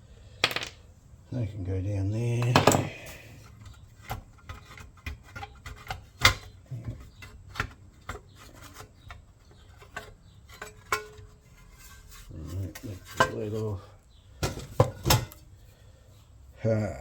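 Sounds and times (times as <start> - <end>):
metal tools clicking and knocking: 0.4 - 0.8, 2.4 - 11.4.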